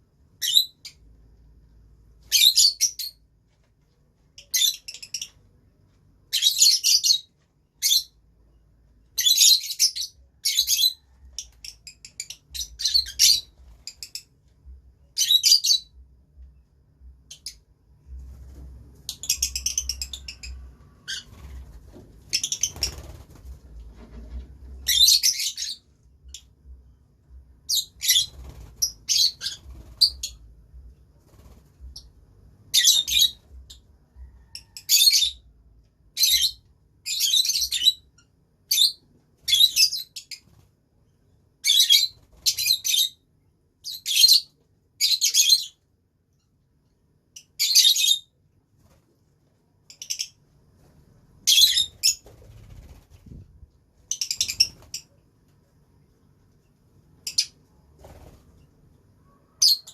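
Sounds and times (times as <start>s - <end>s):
lovebirds chirping: 9.1s - 14.3s, 19.1s - 23.2s, 51.4s - 53.0s, 54.0s - 55.1s, 57.2s - 58.4s, 59.2s - 59.9s.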